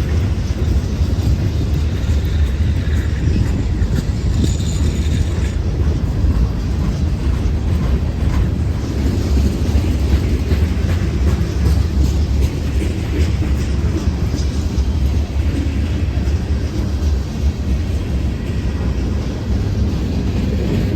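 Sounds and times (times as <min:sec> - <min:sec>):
freight train rumbling past: 0:00.0 - 0:20.9.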